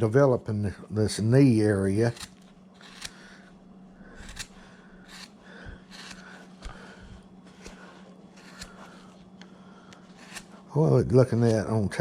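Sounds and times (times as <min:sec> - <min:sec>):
low hum: 0:00.0 - 0:12.0
carving gouge cutting wood: 0:02.0 - 0:03.3, 0:04.0 - 0:06.9, 0:07.5 - 0:09.2, 0:10.1 - 0:10.6.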